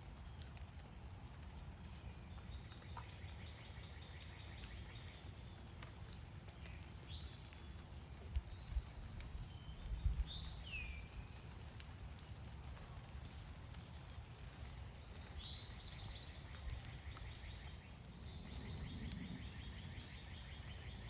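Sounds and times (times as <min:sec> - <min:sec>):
songbirds singing and calling: 0:01.8 - 0:11.6, 0:13.9 - 0:21.0.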